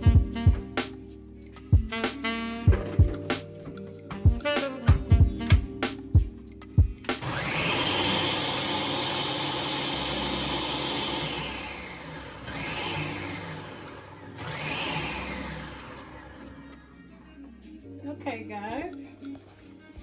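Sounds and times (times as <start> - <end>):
blender motor running: 7.2 - 17.0.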